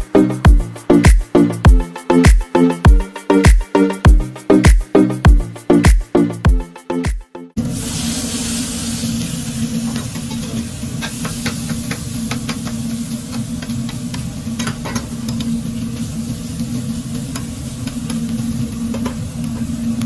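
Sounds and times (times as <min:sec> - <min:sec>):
food frying and sizzling: 0:07.6 - 0:20.0.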